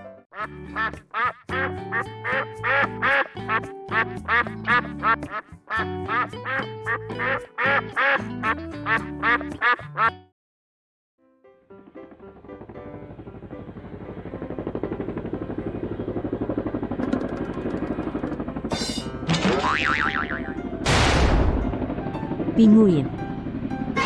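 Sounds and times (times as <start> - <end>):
duck quacking: 0.3 - 10.3.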